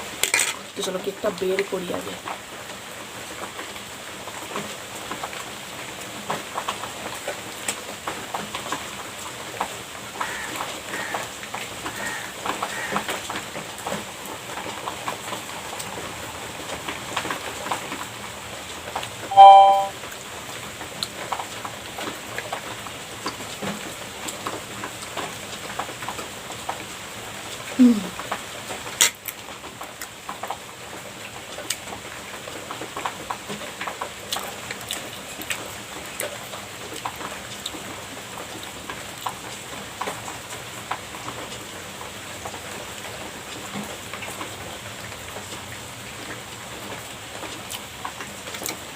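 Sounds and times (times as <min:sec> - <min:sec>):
cutlery and packaging clicks: 0:00.2 - 0:00.6, 0:29.0 - 0:29.4
short loud ringing tone: 0:19.3 - 0:19.9.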